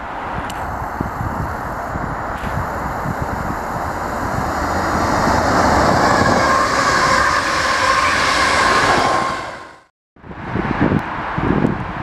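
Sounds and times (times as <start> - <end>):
train high whine: 0.0 - 9.9
train rumbling past on rails: 0.0 - 12.0.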